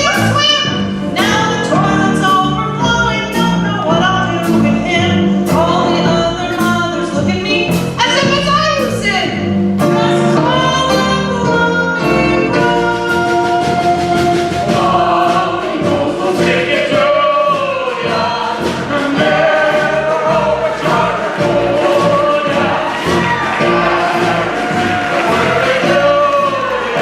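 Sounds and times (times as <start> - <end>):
instrumental accompaniment: 0.0 - 27.0
group singing in chorus: 13.2 - 27.0.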